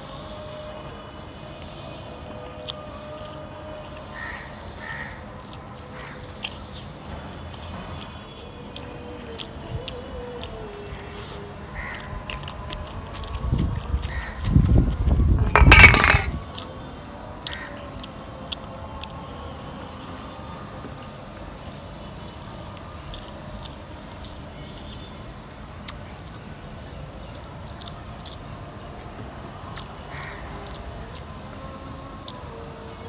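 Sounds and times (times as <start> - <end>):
person chewing and eating: 8.3 - 15.0, 21.6 - 25.1, 25.8 - 28.5.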